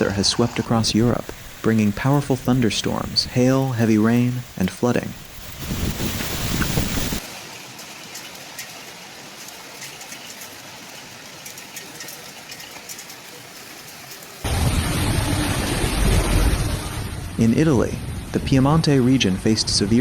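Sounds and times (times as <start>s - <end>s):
rain falling: 0.0s - 17.4s
deep rumbling roar: 14.4s - 18.5s.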